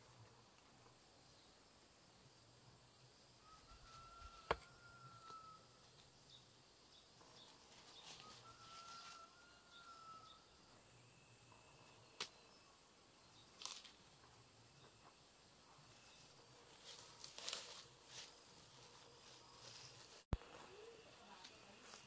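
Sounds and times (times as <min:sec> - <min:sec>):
bird long whistle: 0:03.4 - 0:05.6.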